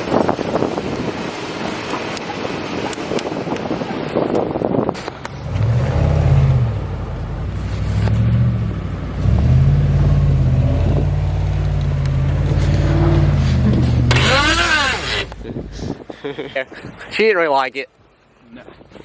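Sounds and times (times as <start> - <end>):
wind on microphone: 0.0 - 9.7, 10.4 - 17.2
vehicle engine revving: 5.1 - 15.8.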